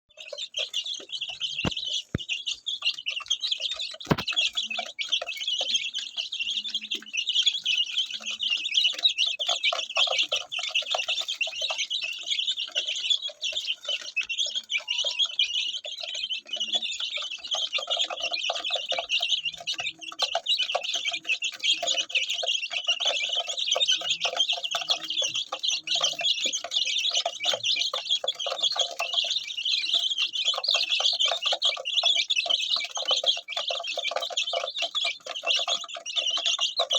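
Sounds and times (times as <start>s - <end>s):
chicks peeping: 0.1s - 36.9s.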